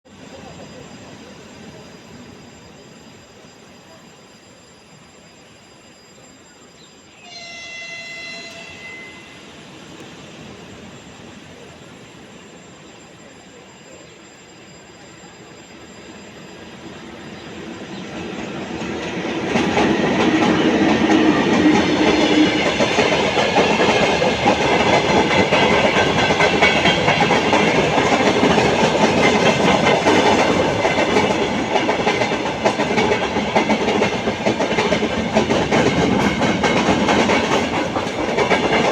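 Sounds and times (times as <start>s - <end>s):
freight train wheels on rails: 5.2s - 38.9s
train horn: 7.2s - 9.7s.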